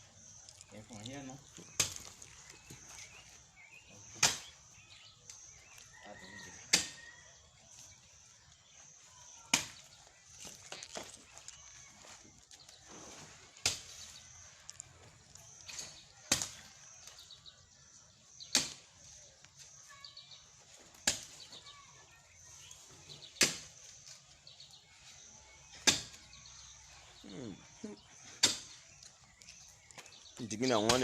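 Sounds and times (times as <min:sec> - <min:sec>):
digging tool striking rocky ground: 0:01.6 - 0:02.9, 0:13.6 - 0:17.0, 0:25.6 - 0:26.3, 0:28.3 - 0:28.8.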